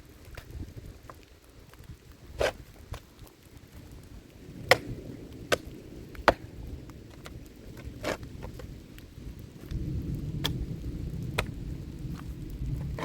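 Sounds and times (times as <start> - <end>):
low steady rumble: 3.8 - 13.0.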